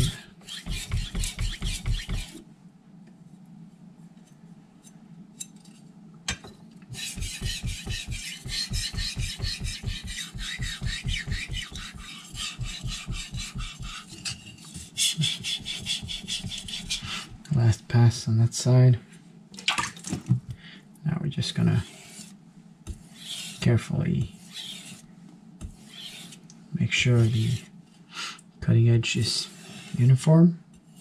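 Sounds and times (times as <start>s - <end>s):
knife rasping on whetstone: 0.0s - 2.4s, 6.9s - 17.1s, 21.8s - 26.4s, 27.2s - 27.7s, 29.3s - 31.0s.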